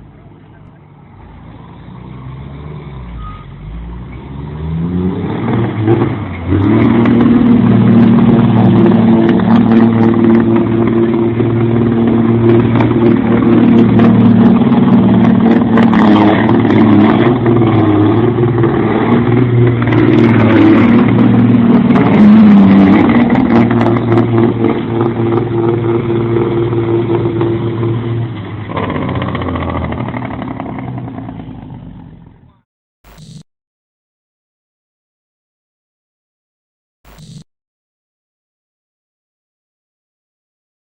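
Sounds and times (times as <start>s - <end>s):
heavy truck engine running: 0.0s - 32.6s.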